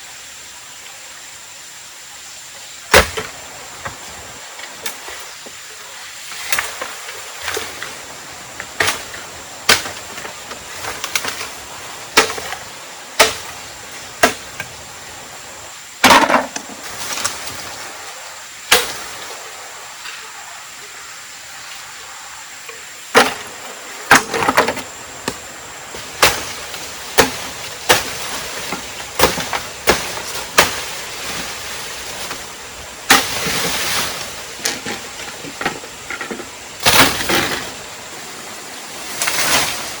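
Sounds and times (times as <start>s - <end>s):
blade chopping wood: 2.9s - 3.4s, 8.7s - 11.6s, 12.2s - 13.6s, 14.2s - 14.7s, 16.0s - 17.4s, 18.7s - 19.0s, 23.1s - 23.5s, 24.1s - 25.4s, 26.0s - 31.6s, 33.1s - 33.8s, 34.6s - 37.7s.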